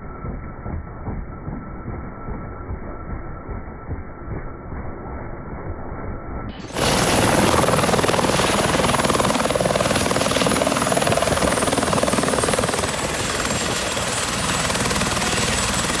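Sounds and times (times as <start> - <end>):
muffled low rumble: 0.0 - 6.6
helicopter engine and rotor noise: 0.0 - 16.0.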